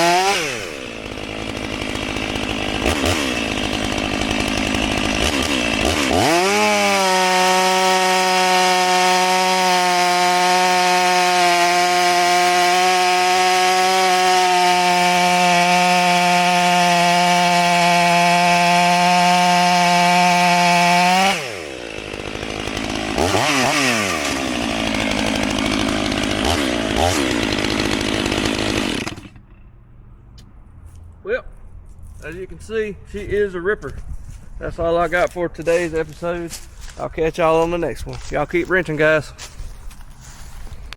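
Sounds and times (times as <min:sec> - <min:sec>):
chainsaw cutting a log: 0:00.0 - 0:29.6.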